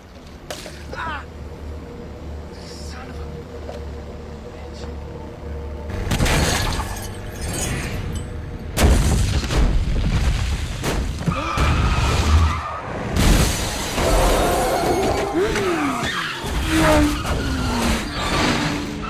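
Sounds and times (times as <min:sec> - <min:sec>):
shattering glass: 0:06.1 - 0:08.2.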